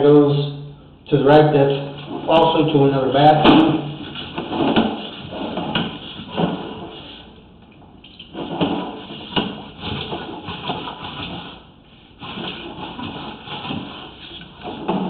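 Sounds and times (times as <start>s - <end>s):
cable scraping and knocking in drain: 1.8s - 7.2s, 8.1s - 15.0s.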